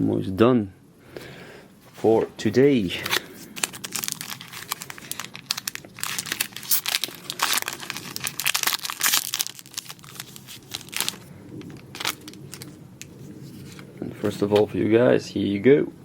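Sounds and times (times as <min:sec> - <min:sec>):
foil wrapper tearing and crinkling: 0:02.9 - 0:13.9.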